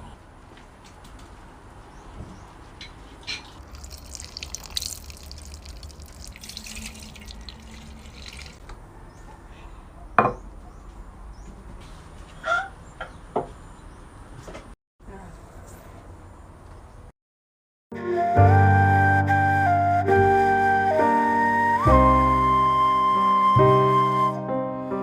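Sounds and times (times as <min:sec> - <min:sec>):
water splashing and dripping: 0:03.6 - 0:08.7.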